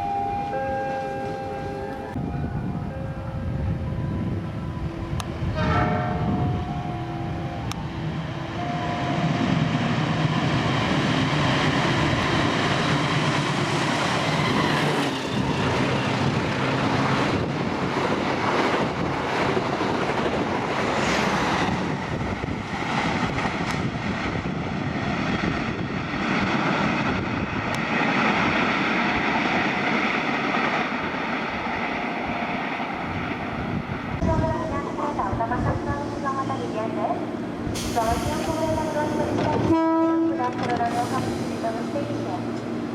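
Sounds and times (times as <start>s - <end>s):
locomotive horn: 5.5s - 6.6s, 38.8s - 41.2s
train wheels on rails: 7.6s - 42.9s.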